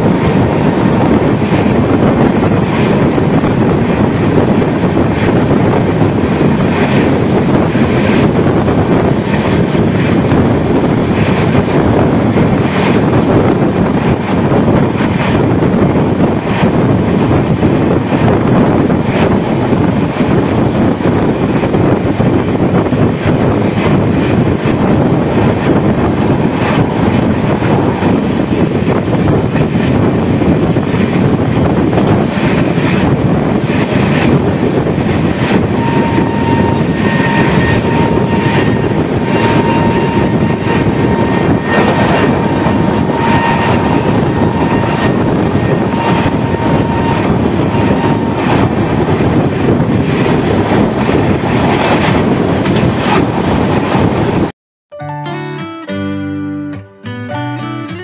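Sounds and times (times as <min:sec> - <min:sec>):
train wheels rumbling on track: 0:00.0 - 0:54.5
rushing wind: 0:00.0 - 0:54.6
rail-joint clicks: 0:51.6 - 0:53.3.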